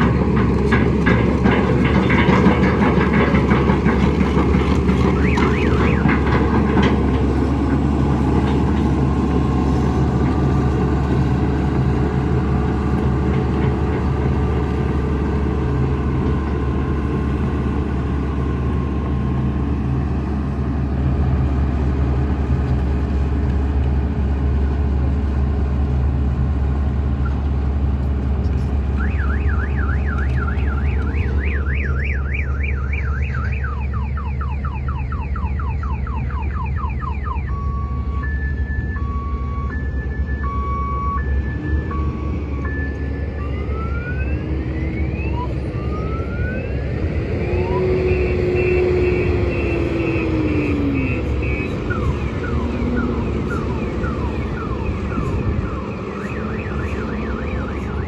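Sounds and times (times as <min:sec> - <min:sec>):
warbling reversing alarm: 0:00.0 - 0:11.2, 0:29.0 - 0:58.0
diesel machinery running: 0:00.0 - 0:58.0.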